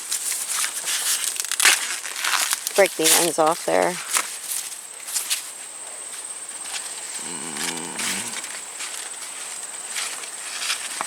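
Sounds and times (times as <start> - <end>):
corn husks crackling: 0.0 - 5.5
insects buzzing: 0.5 - 11.0
wavering animal call: 7.2 - 8.6.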